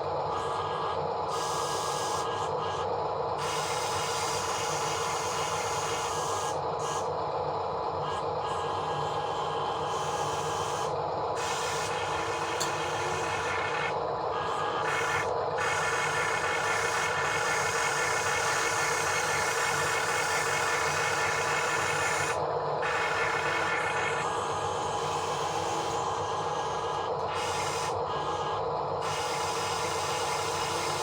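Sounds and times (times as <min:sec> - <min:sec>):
mechanical whirring and rubbing: 0:08.0 - 0:31.0.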